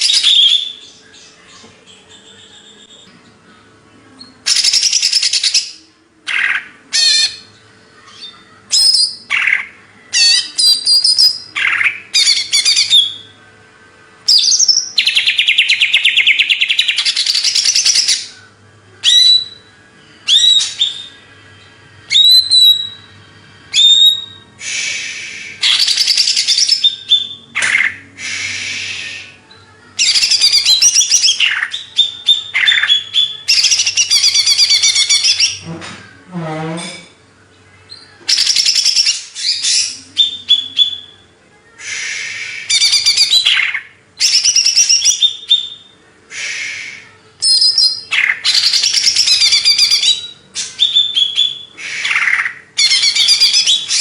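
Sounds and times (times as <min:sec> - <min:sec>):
bird singing chattering trills: 0:04.2 - 0:13.4, 0:29.1 - 0:35.6, 0:37.9 - 0:41.2, 0:42.6 - 0:46.0, 0:47.4 - 0:54.0.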